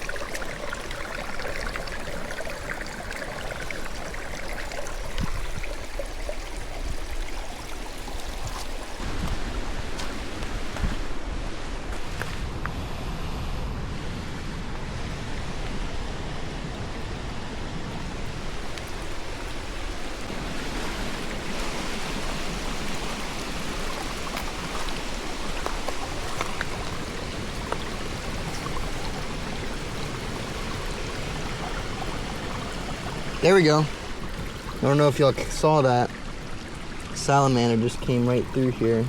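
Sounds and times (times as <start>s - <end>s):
stream flowing: 0.0s - 39.0s.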